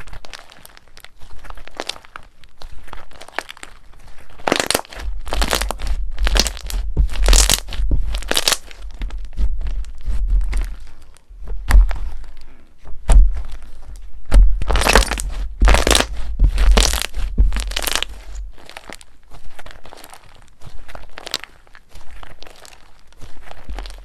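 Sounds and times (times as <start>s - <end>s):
crunchy slime crackling: 0.0s - 24.0s
low handling thumps: 6.0s - 18.6s.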